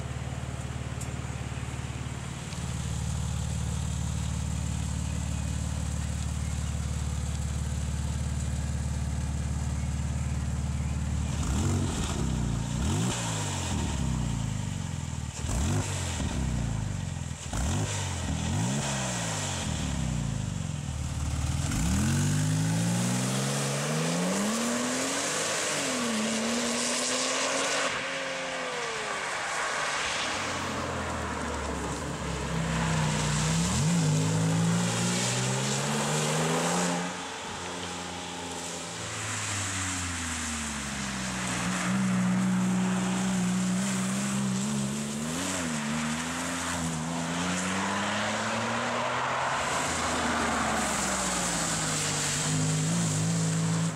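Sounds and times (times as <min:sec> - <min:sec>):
road and wind noise: 0:00.0 - 0:53.9
car engine accelerating through gears: 0:10.8 - 0:14.7.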